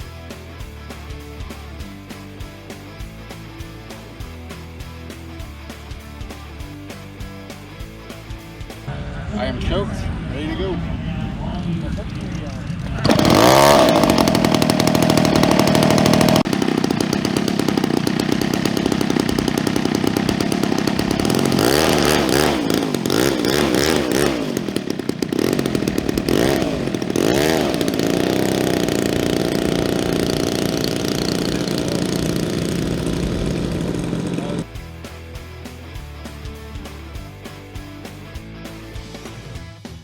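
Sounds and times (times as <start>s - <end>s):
model plane gas engine revving: 11.2s - 34.7s.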